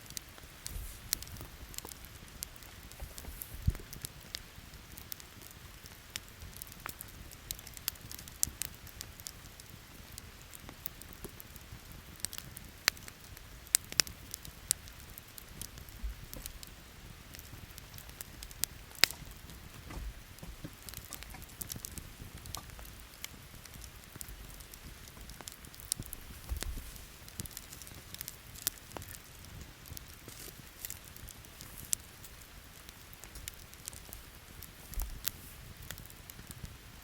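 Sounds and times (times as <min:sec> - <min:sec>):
rain hissing: 0:00.0 - 0:04.7, 0:24.0 - 0:29.3
campfire crackling and popping: 0:00.0 - 0:37.0.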